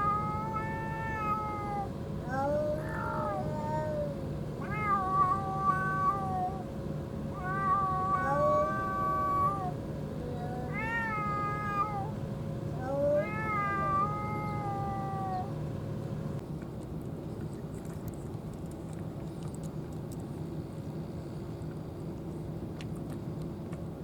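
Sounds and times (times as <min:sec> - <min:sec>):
cat meowing: 0:00.0 - 0:06.6, 0:07.3 - 0:12.1, 0:12.8 - 0:15.5.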